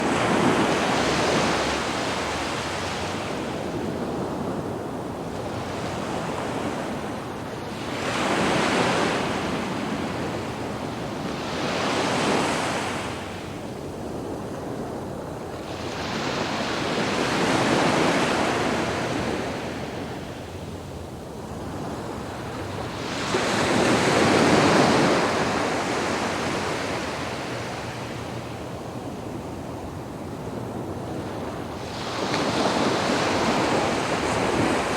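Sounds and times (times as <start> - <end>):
surf breaking on a beach: 21.4 - 34.9.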